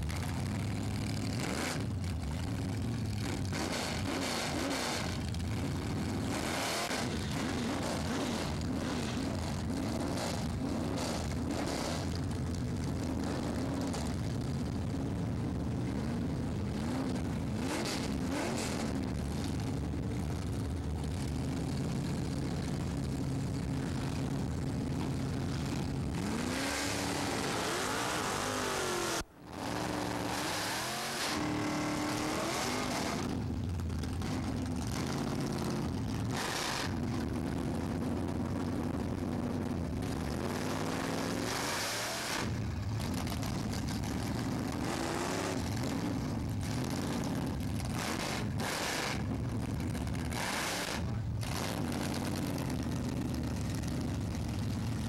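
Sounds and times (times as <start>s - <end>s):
engine held at high revs: 0.0s - 14.6s, 15.7s - 55.0s
racing car engines at full throttle: 0.0s - 55.0s.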